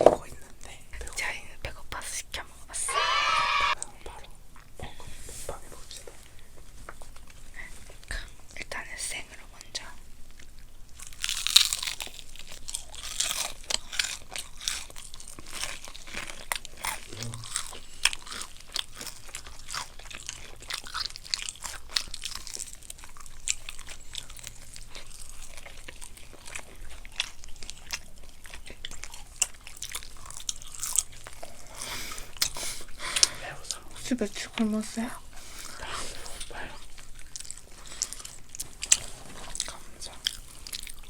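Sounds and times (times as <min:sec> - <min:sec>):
crunchy chewing: 0:10.2 - 0:41.0.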